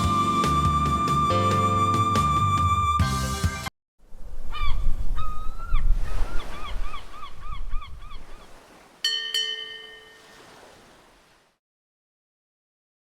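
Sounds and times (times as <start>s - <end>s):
ringing tone struck: 9.1s - 10.3s.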